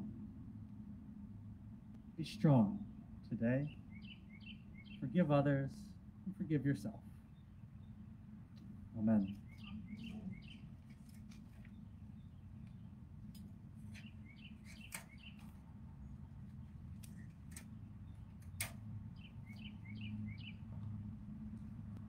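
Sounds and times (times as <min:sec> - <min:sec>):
steady low rumble: 0:00.0 - 0:22.0
songbird chirping: 0:01.9 - 0:21.0
sharp clicks: 0:18.3 - 0:18.9.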